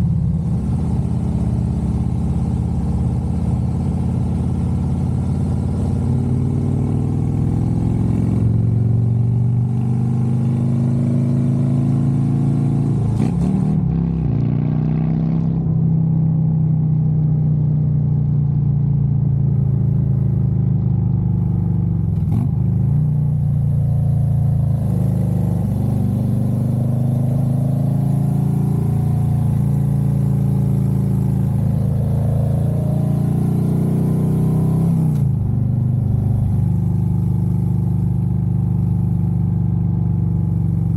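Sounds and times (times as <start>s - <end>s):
motorcycle engine running: 16.0s - 40.9s.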